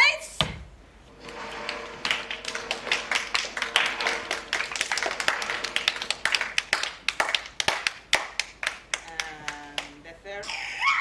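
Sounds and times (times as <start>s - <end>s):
audience clapping: 1.2s - 10.0s.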